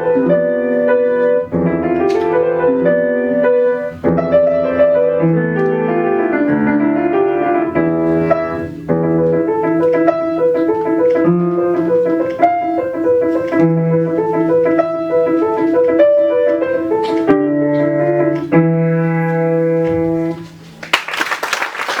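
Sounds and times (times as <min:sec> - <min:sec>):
solo piano melody: 0:00.0 - 0:20.8
audience applause: 0:20.8 - 0:22.0.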